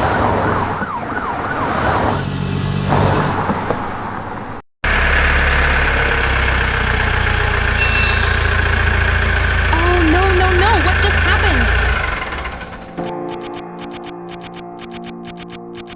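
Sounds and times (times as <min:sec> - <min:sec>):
noisy engine commotion: 0:02.0 - 0:15.9
vehicle engine idling: 0:04.8 - 0:13.0.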